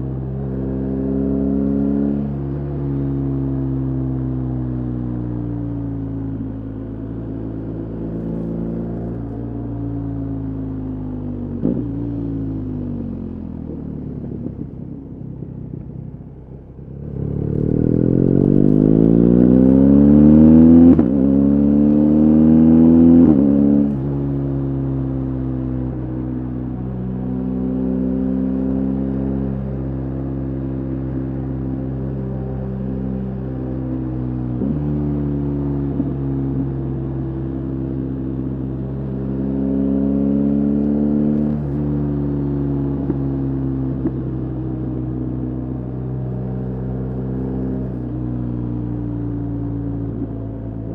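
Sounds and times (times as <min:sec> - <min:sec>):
motorcycle engine revving: 0:16.8 - 0:50.9.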